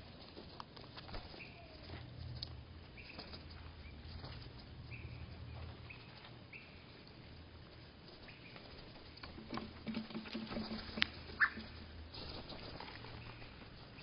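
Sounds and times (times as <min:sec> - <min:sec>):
low steady hum: 0:00.0 - 0:14.0
slowed bird calls: 0:11.3 - 0:11.8.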